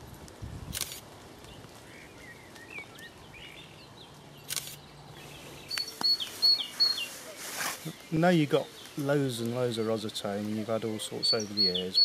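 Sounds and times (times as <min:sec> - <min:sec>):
faint bird chirps: 0:04.4 - 0:09.0, 0:10.9 - 0:12.0.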